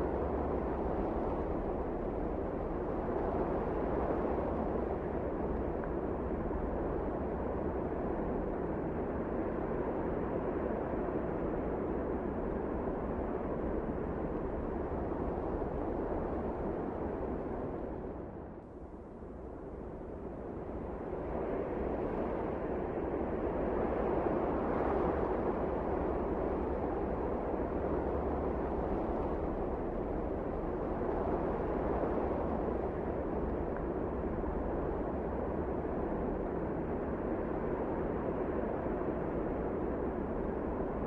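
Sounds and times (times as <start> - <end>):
rushing wind: 20.3 - 41.0.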